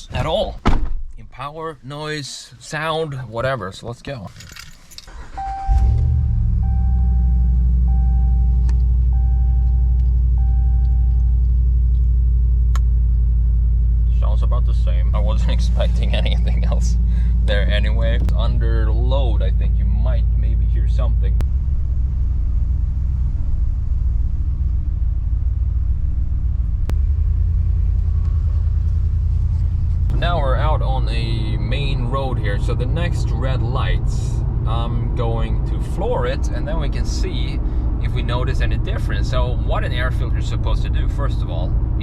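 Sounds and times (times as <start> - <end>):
road noise inside cab: 1.8 - 42.0
truck engine rumbling: 4.1 - 42.0
dashboard warning chime: 5.1 - 11.4.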